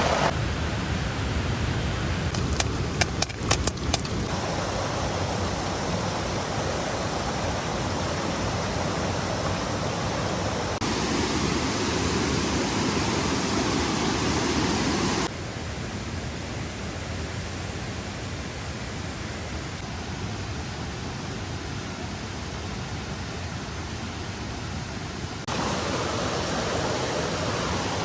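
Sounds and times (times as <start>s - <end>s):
rush of falling water: 0.0s - 28.0s.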